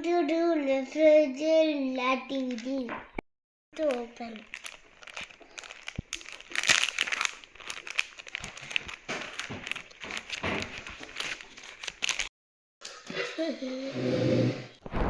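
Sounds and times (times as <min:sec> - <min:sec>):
packaging crinkling and rustling: 0:03.8 - 0:12.3.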